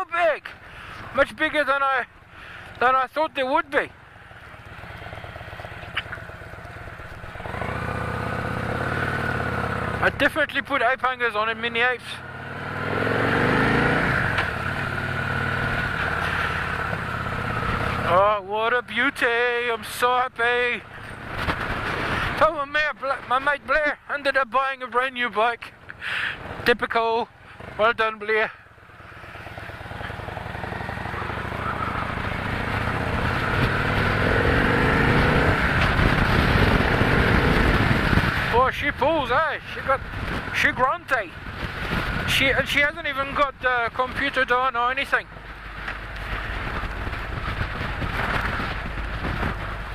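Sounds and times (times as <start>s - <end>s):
motorcycle engine accelerating: 4.0s - 10.3s, 12.1s - 18.2s, 28.8s - 39.3s, 45.5s - 49.9s
wind rush: 30.4s - 39.2s, 41.4s - 42.6s, 45.6s - 49.9s.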